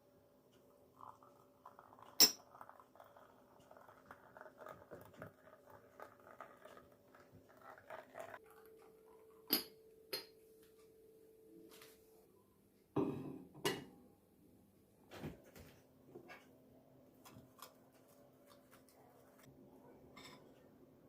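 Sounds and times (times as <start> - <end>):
dishes clinking: 20.1 - 20.6.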